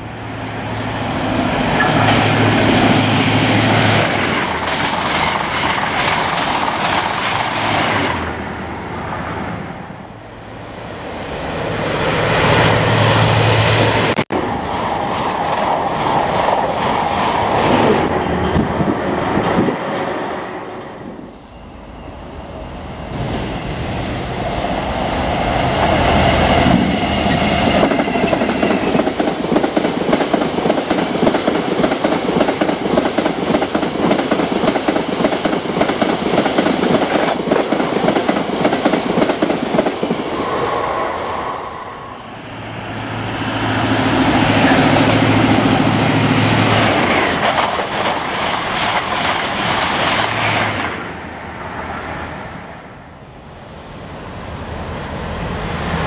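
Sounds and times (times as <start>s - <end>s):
diesel locomotive engine drone: 0.0s - 56.0s
passenger train rushing past: 0.0s - 56.0s.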